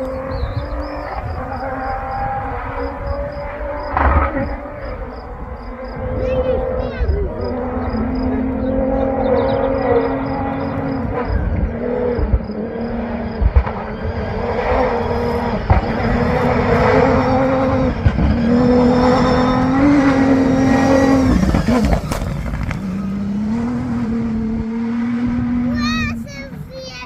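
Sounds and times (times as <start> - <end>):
engine revving hard: 0.0 - 26.5.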